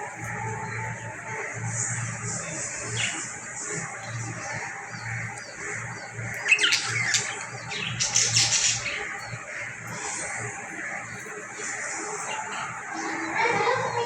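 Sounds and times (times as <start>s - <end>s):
parrot squawking: 5.8s - 14.0s.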